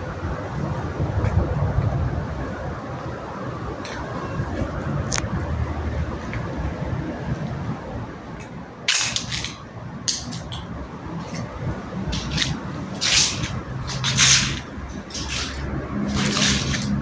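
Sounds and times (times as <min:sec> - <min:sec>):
hissing water splashes: 0:08.9 - 0:17.0.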